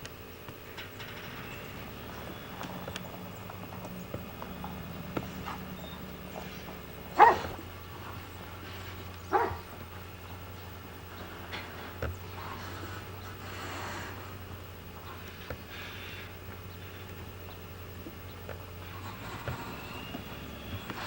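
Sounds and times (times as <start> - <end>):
steady low hum: 0.0 - 21.0
dog barking: 7.1 - 7.7, 9.2 - 9.8.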